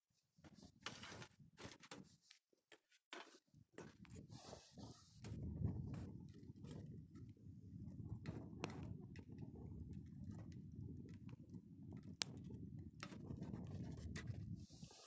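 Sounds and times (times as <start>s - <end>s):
campfire crackling: 5.2s - 14.9s.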